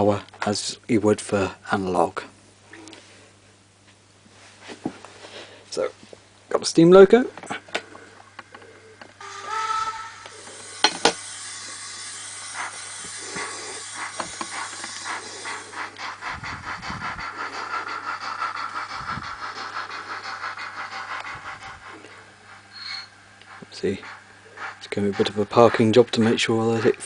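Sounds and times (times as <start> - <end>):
steam locomotive whistle: 9.2 - 15.0
steam hiss: 9.2 - 27.0
locomotive exhaust chuffs: 9.5 - 27.0.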